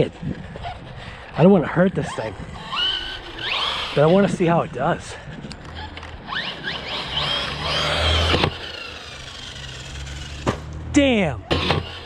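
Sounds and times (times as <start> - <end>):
electric motor whining: 2.0 - 10.9, 11.5 - 12.0.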